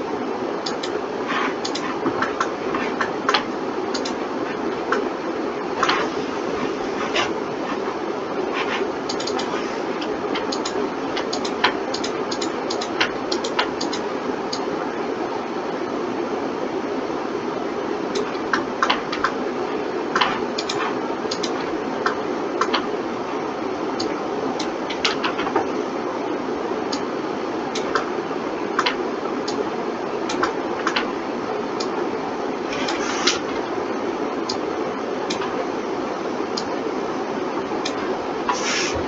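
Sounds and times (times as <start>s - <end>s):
steady machine hum: 0.0s - 39.0s
computer mouse clicks: 0.6s - 4.2s, 5.8s - 6.1s, 8.5s - 14.7s, 18.1s - 19.4s, 20.1s - 22.9s, 27.7s - 28.1s, 28.8s - 29.6s, 30.3s - 31.1s, 32.7s - 33.6s, 35.3s - 35.6s.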